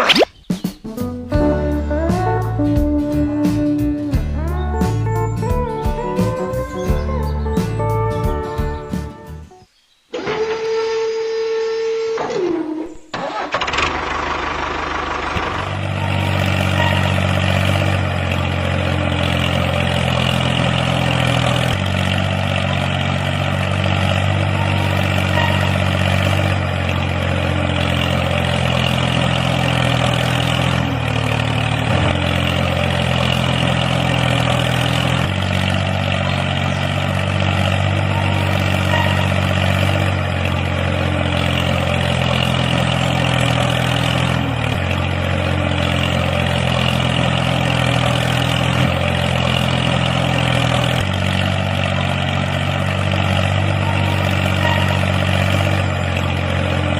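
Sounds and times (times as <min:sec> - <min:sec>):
tractor-like engine drone: 0:01.2 - 0:09.5, 0:10.1 - 0:56.9.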